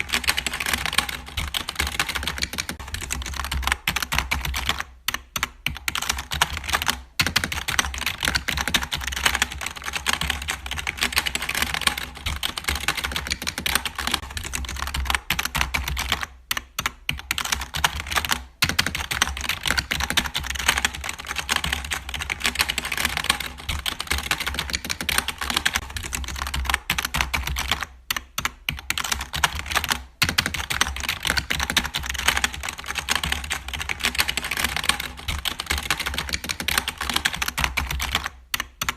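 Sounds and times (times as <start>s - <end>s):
fast clicking and tapping: 0.0s - 38.9s.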